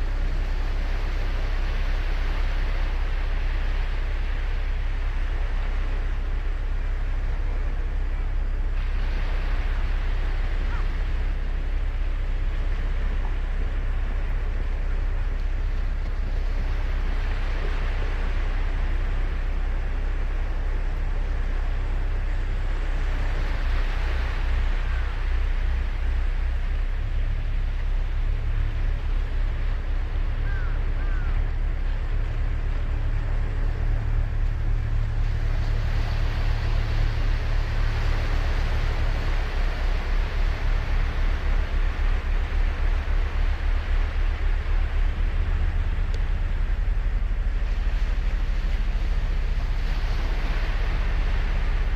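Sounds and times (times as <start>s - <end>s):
surf washing onto beach: 0.0s - 51.9s
wind buffeting microphone: 0.0s - 51.9s.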